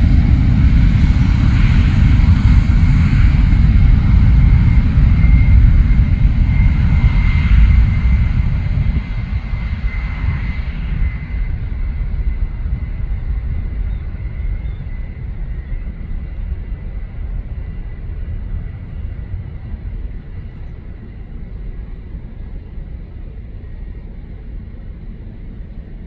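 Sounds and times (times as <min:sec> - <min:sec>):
jet engines at high power: 0:00.0 - 0:26.0.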